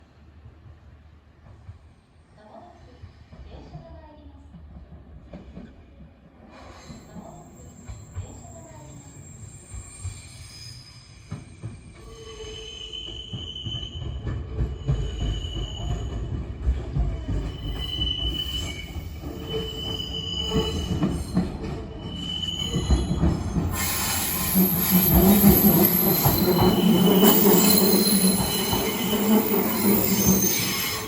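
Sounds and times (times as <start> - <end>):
train wheels rumbling on rail: 0.0 - 31.0
high-pitched wheel squeal: 7.5 - 14.2, 17.5 - 31.0.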